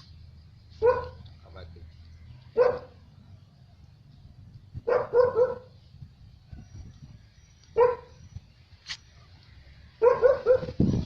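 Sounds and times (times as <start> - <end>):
dog barking: 0.8 - 1.2, 2.6 - 3.0, 4.8 - 5.7, 7.8 - 8.1, 10.0 - 10.8.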